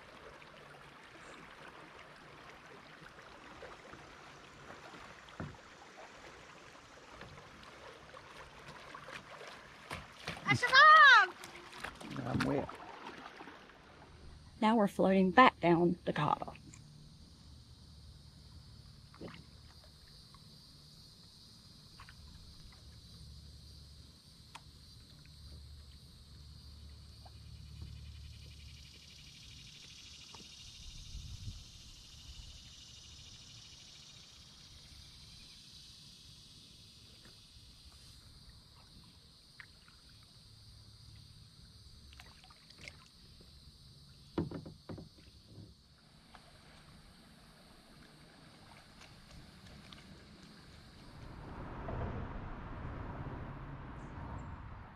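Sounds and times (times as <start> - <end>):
paddle knocking and splashing: 0.0 - 14.3, 44.2 - 52.2
low rumble of water and wind: 0.0 - 54.9.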